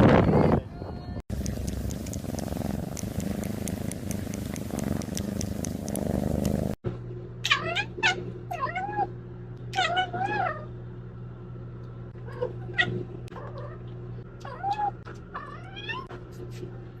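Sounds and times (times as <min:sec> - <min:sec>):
low steady hum: 0:00.8 - 0:17.0
faint clicks: 0:01.3 - 0:06.8
steady rumbling noise: 0:01.3 - 0:07.3.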